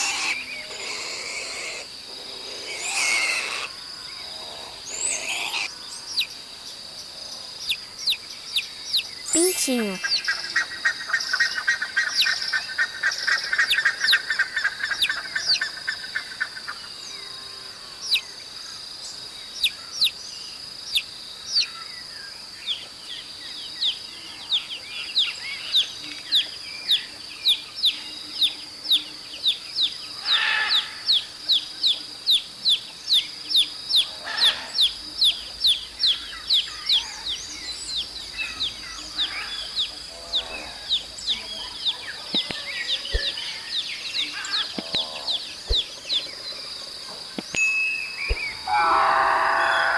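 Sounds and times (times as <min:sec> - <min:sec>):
steady high background tone: 0:47.4 - 0:49.0.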